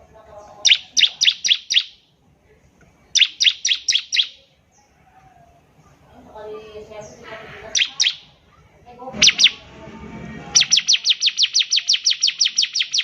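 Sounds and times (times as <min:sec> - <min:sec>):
bird singing downslurred notes: 0:00.4 - 0:02.0, 0:03.1 - 0:04.5, 0:07.7 - 0:08.3, 0:09.2 - 0:09.7, 0:10.5 - 0:13.0.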